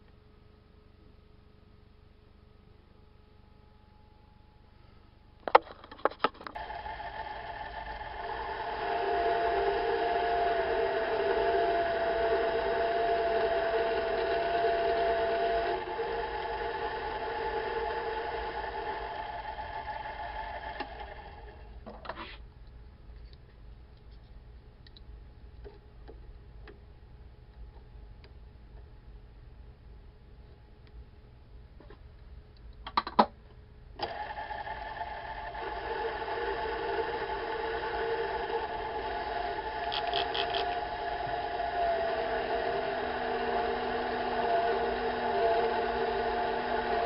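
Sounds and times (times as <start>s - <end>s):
metal lathe humming: 6.6s - 21.7s, 34.0s - 47.0s.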